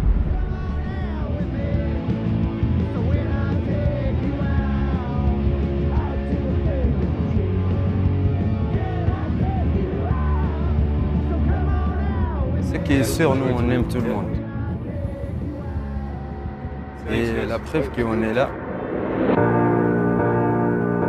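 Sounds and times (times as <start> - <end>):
heavy bass: 0.0 - 21.0
rock music: 0.0 - 21.0
person singing: 8.6 - 17.1.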